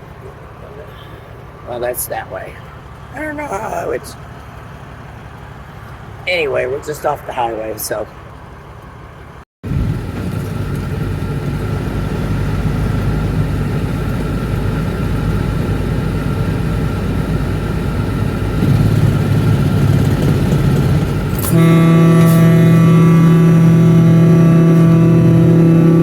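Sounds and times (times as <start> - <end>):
highway traffic rumble: 0.0 - 26.0
loud steady pitched drone: 15.0 - 26.0.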